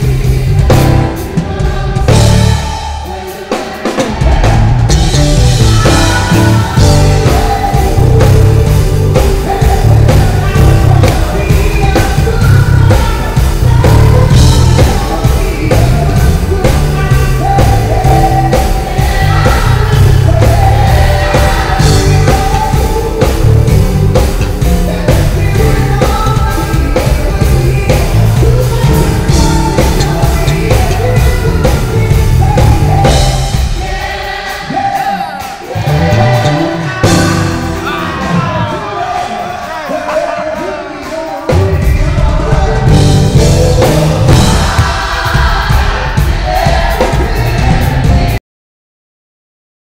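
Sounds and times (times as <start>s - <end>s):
live band playing: 0.0s - 48.4s
person singing: 0.0s - 48.4s
heavy electric bass line: 4.1s - 33.8s, 35.8s - 38.6s, 41.8s - 48.4s.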